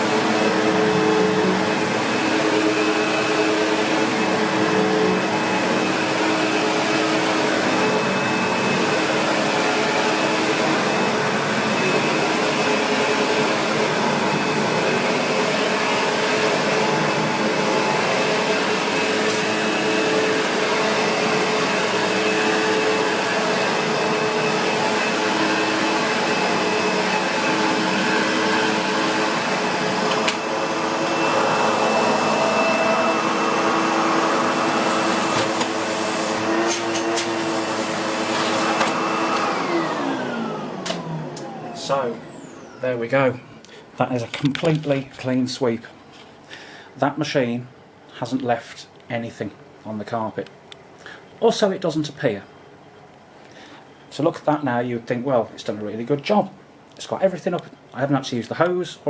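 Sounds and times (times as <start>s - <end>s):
vacuum cleaner on carpet: 0.0s - 43.7s.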